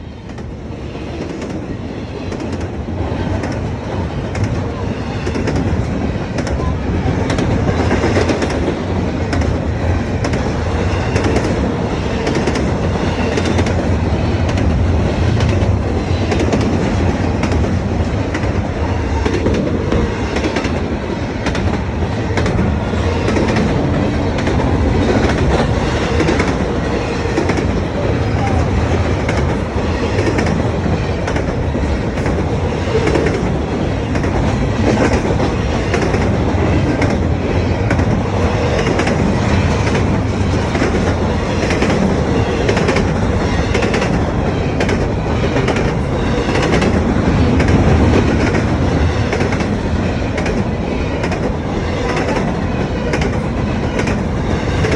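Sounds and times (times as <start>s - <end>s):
train cars rumbling: 0.0s - 54.9s.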